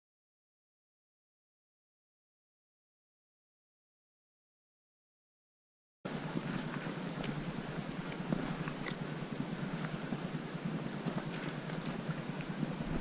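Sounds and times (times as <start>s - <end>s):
steady rushing noise: 6.1s - 13.0s.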